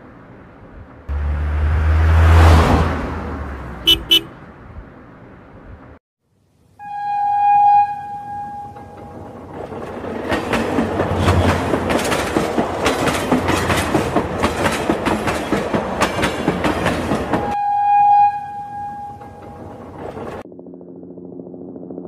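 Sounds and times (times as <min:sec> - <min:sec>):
toy train horn: 0:06.8 - 0:09.0, 0:17.6 - 0:19.4
clickety-clack of wheels on track: 0:08.6 - 0:17.6, 0:18.9 - 0:20.4.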